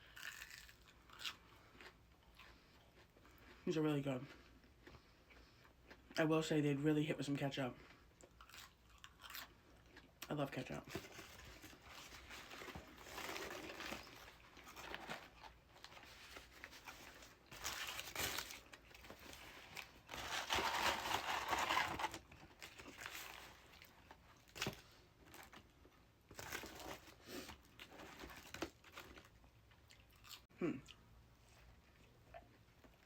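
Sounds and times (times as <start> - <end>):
paper wrapping crinkling: 10.9 - 23.9
sharp paper crackle: 11.9 - 22.2.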